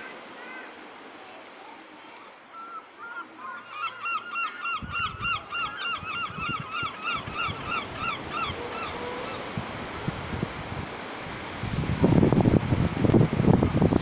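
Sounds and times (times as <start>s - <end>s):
bird calling in repeated notes: 2.5s - 9.5s
wind buffeting microphone: 4.7s - 14.0s.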